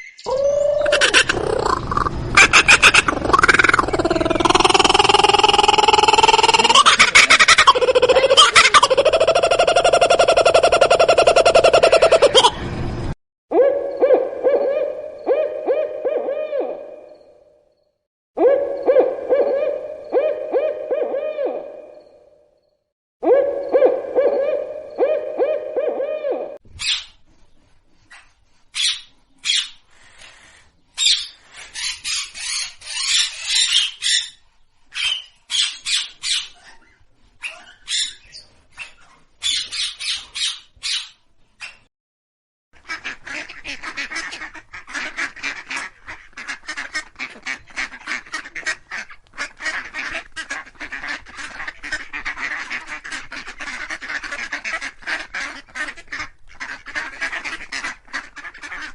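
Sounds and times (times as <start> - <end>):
harsh bird calls: 0.0 - 12.6.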